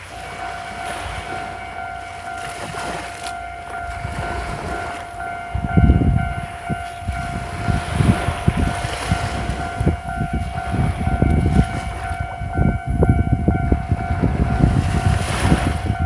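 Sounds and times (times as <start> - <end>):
surf: 0.0 - 16.0
wind gusting on microphone: 3.7 - 16.0.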